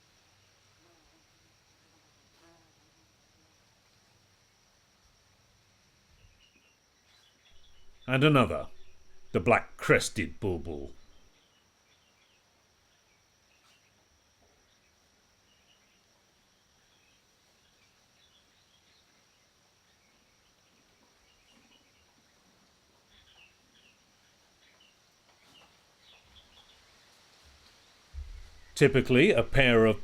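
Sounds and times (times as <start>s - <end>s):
small birds chirping: 6.2s - 14.0s, 16.7s - 27.2s.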